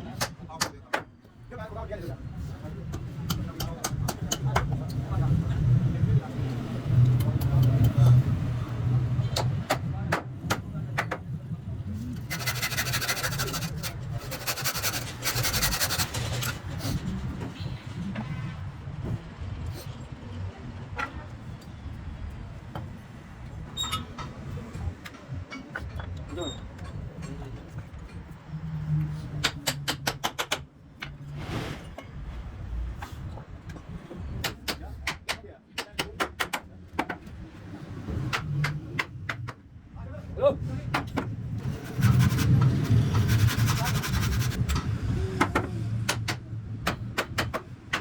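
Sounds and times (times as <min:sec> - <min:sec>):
hand tool scraping wood: 0:12.2 - 0:17.0, 0:41.6 - 0:44.6.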